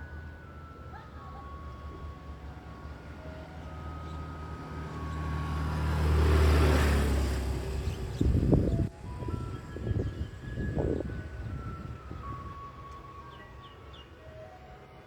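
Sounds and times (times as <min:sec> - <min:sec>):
vehicle passing by: 0:02.4 - 0:11.6.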